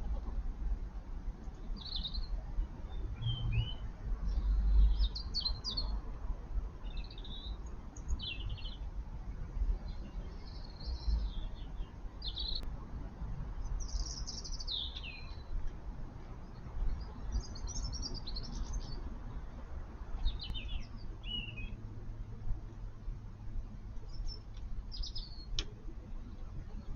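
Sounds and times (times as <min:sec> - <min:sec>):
birds chirping and trilling: 0:01.6 - 0:06.0, 0:06.8 - 0:08.9, 0:09.8 - 0:12.7, 0:13.6 - 0:15.5, 0:16.4 - 0:19.1, 0:20.1 - 0:21.8, 0:24.0 - 0:25.6.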